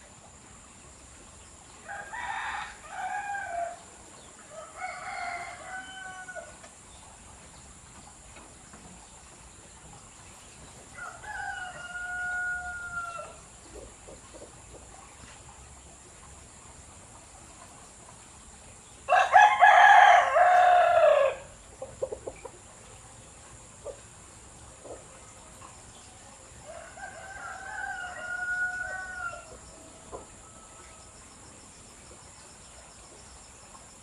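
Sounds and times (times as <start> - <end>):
rooster crowing: 1.8 - 3.8, 4.5 - 6.6, 11.0 - 13.4, 19.1 - 21.5, 26.6 - 31.0.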